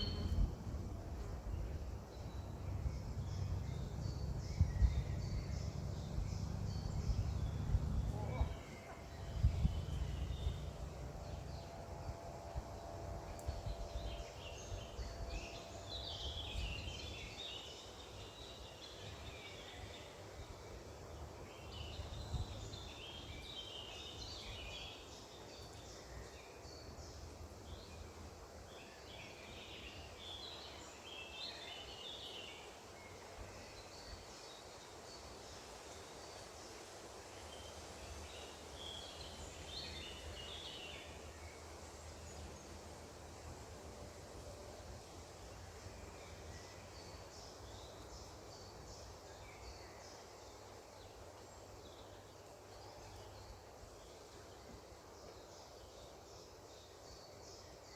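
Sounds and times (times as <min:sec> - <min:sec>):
small birds chirping: 0:00.0 - 0:12.2
low background rumble: 0:00.0 - 0:18.5.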